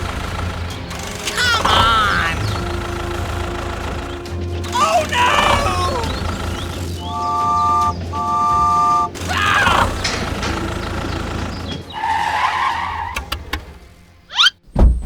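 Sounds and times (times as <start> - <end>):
vehicle and tyre noise: 0.0 - 14.8
vehicle horn beeps: 7.0 - 9.2.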